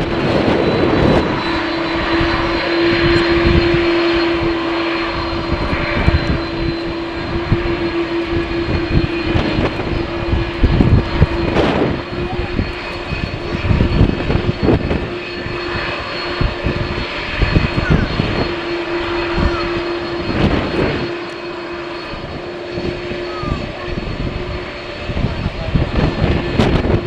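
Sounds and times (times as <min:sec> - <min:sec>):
airliner engines whining: 0:00.0 - 0:27.0
wind buffeting microphone: 0:00.0 - 0:27.0.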